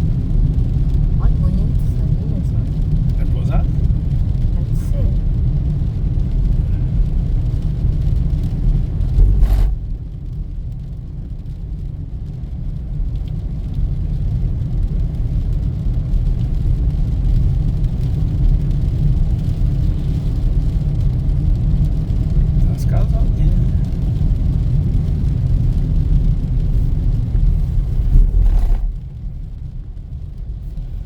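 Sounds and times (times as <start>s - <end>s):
car road rumble from inside cabin: 0.0s - 31.0s.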